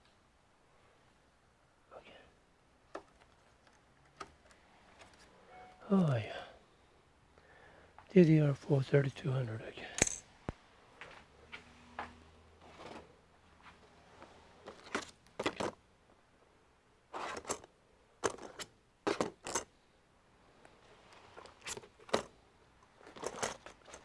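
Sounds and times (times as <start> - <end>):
clicks and scrapes of computer parts: 2.9 - 5.7, 14.6 - 15.8, 17.2 - 19.7, 21.4 - 22.3, 22.9 - 24.0.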